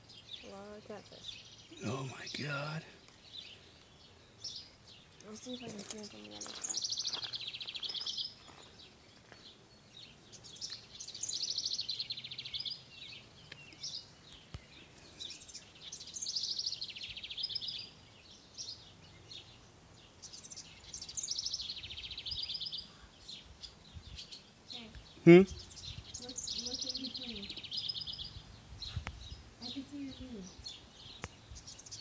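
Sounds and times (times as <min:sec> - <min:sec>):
songbird singing with trill: 0:00.0 - 0:32.0.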